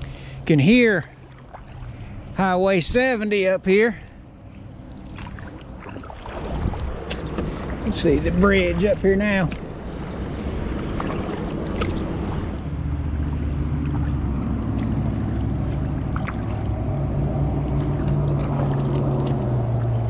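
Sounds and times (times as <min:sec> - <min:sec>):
highway traffic drone: 0:00.0 - 0:20.0
deep engine note: 0:04.0 - 0:20.0
kayak paddle drips: 0:10.7 - 0:20.0.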